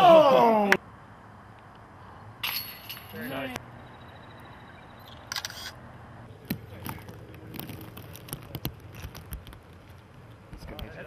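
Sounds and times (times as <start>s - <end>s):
rustling: 6.5s - 10.7s.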